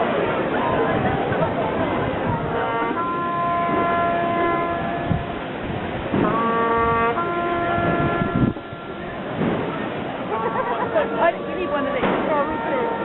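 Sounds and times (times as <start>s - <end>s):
noisy background: 0.0s - 13.0s
brass long held notes: 2.2s - 9.4s, 10.3s - 13.0s.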